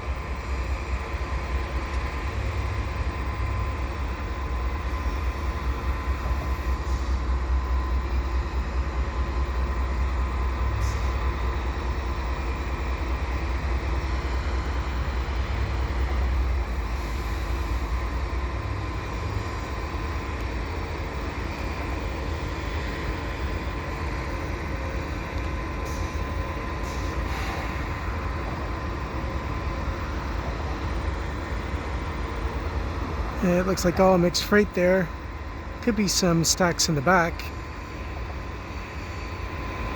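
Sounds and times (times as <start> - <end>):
diesel locomotive rumble: 0.0 - 39.9
thin steady whine: 0.0 - 39.9.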